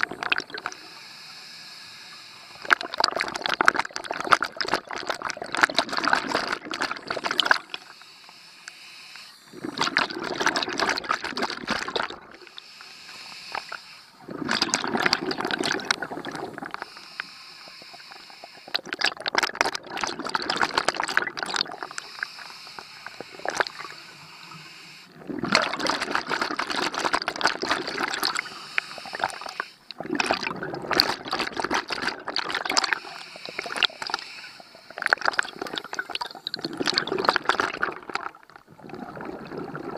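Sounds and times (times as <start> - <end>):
diver breathing through regulator: 0.5 - 2.6, 7.1 - 9.8, 12.4 - 14.5, 15.6 - 18.9, 21.6 - 25.2, 27.7 - 30.0, 32.8 - 36.4.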